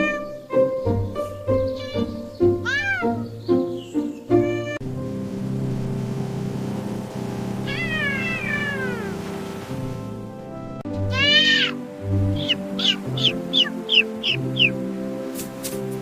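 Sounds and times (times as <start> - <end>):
cat meowing: 0.0 - 0.2, 1.6 - 3.2, 4.4 - 4.8, 7.7 - 9.1, 11.1 - 11.8, 12.4 - 14.7
background music: 0.0 - 16.0.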